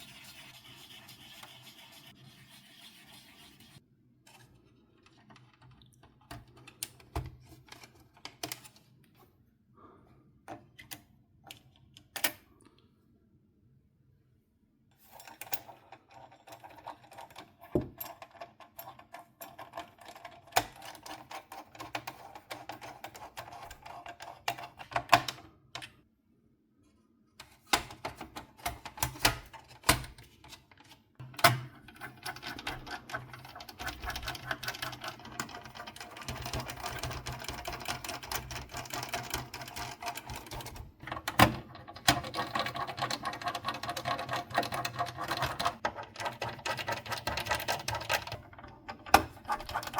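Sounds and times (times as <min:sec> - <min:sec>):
plastic and metal parts rattling: 0:27.9 - 0:49.9.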